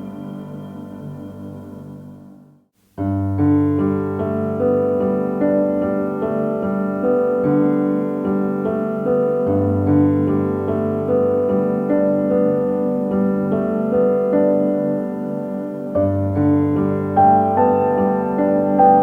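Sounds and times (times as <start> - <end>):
calm piano music: 0.0 - 19.0.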